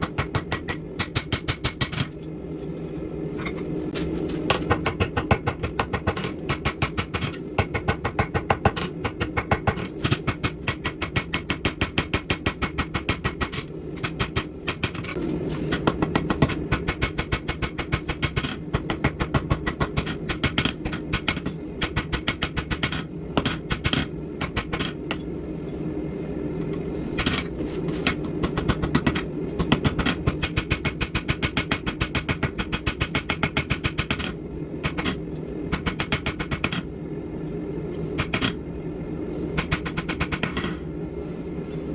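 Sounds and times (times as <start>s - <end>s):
low hum: 0.0s - 32.6s.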